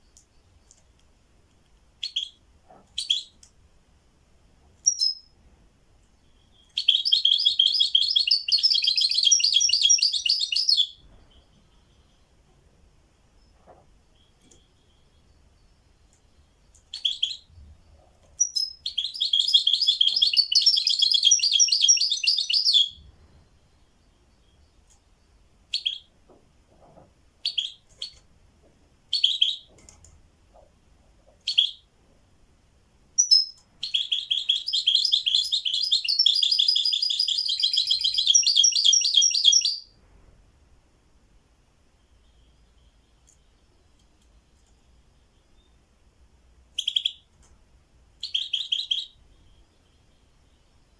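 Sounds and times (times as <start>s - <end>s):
songbird trilling: 4.8s - 5.3s, 6.3s - 11.0s, 18.4s - 23.0s, 25.7s - 26.1s, 33.2s - 39.9s, 48.2s - 49.2s.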